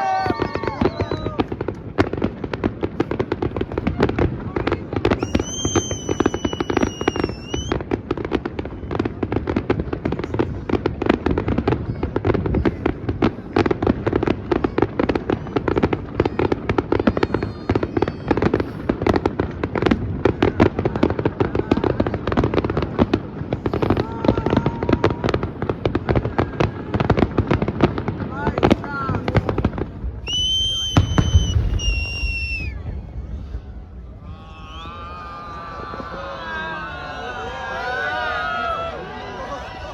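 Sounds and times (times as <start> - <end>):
fireworks bangs and crackling: 0.0 - 39.9
rockets whistling: 5.1 - 7.8, 30.2 - 33.1.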